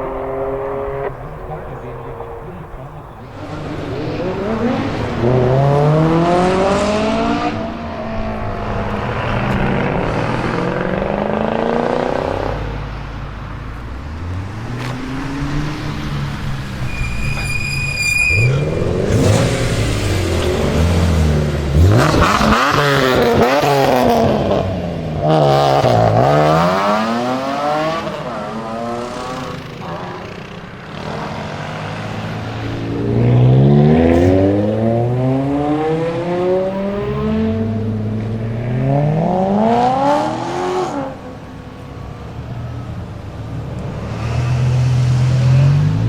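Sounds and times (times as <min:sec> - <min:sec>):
car engines accelerating hard: 0:00.0 - 0:46.0
cars driving past: 0:00.0 - 0:46.0
short high whistle-like tone: 0:16.8 - 0:18.7.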